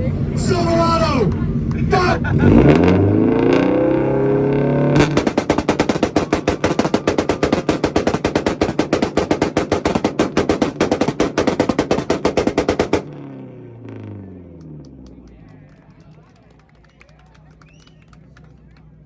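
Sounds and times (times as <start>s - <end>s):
car engine on rev limiter: 0.0s - 7.2s, 13.0s - 15.5s
exhaust firing rapid bangs: 1.9s - 13.4s.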